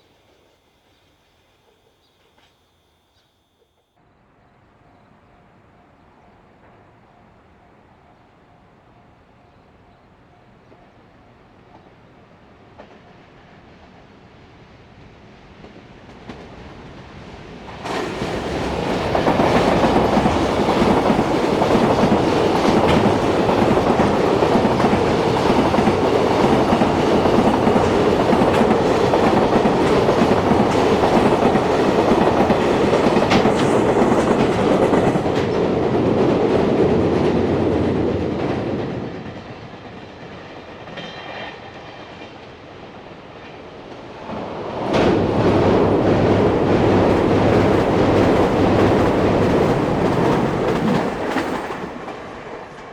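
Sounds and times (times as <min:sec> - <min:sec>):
freight train wheels on rails: 0:11.6 - 0:52.9.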